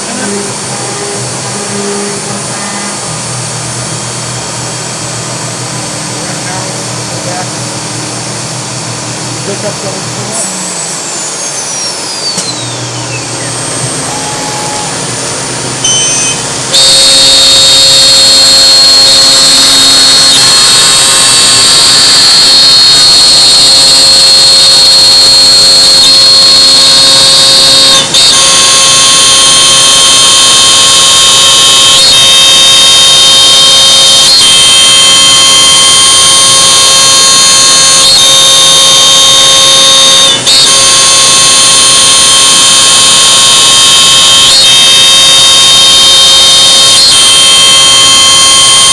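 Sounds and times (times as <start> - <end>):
router spindle high-pitched whine: 0.0 - 48.9.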